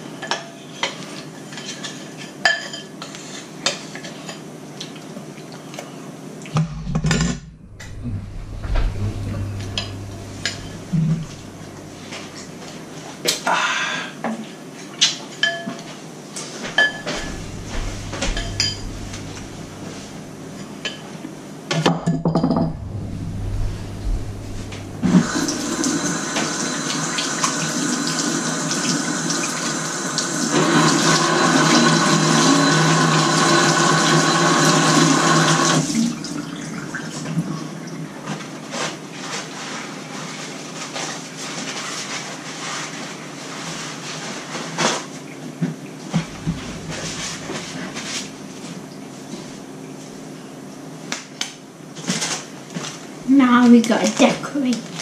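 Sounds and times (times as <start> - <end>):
dishes and cutlery clinking: 0.2 - 3.1, 15.1 - 15.9, 16.7 - 19.5
tap water running: 6.6 - 12.8, 16.8 - 20.8, 22.5 - 38.0, 46.2 - 48.0.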